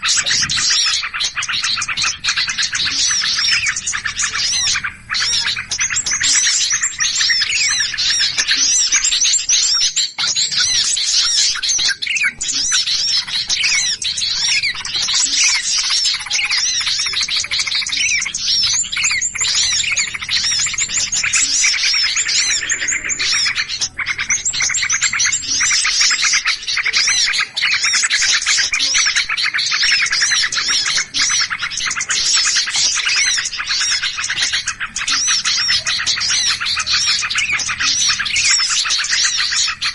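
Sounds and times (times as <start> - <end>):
small birds chirping and chattering: 0.0 - 39.9.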